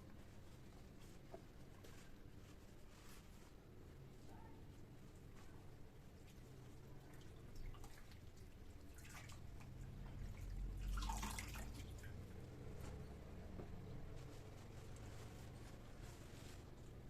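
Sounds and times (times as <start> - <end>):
water dripping: 6.2 - 12.8
water trickling: 6.2 - 13.1.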